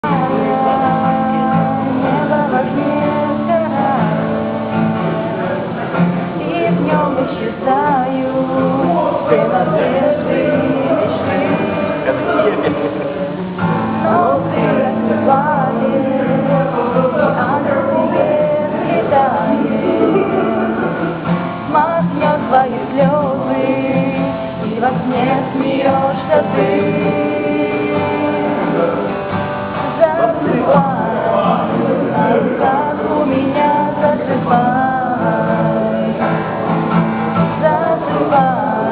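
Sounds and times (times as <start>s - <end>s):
person singing: 0.0s - 36.8s, 37.4s - 38.9s
strummed acoustic guitar: 0.0s - 38.9s.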